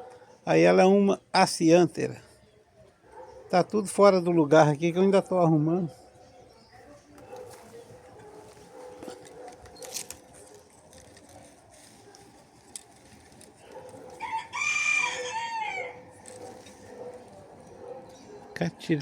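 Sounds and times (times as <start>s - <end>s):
rooster crowing: 14.1s - 16.1s.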